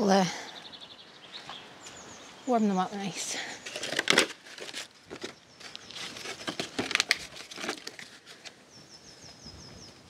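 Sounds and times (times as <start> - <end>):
plastic pots rustling and knocking: 3.6 - 8.6
small bird chirps: 8.7 - 10.0.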